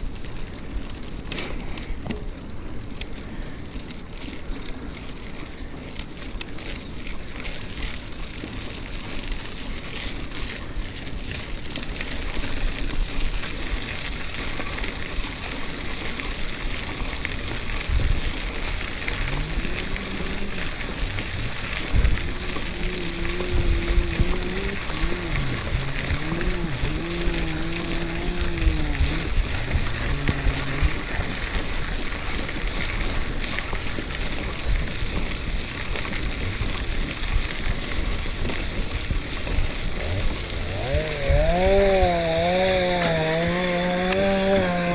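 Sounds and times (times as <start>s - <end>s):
bike clicks and rattles: 0.0s - 44.9s
wind rushing over microphone: 17.8s - 33.0s
pitched hum: 19.0s - 31.5s, 40.0s - 44.9s.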